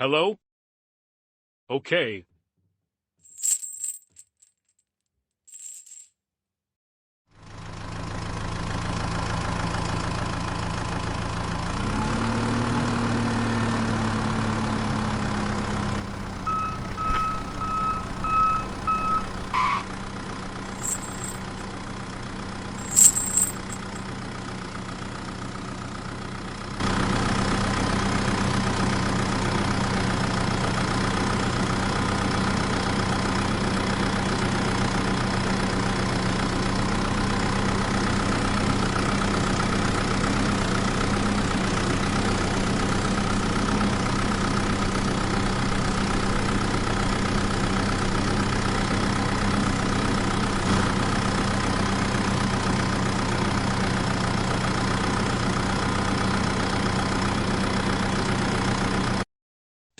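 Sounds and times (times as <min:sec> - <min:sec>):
mini tractor motor running: 0:16.0 - 0:19.6
short even beeps: 0:16.4 - 0:19.8.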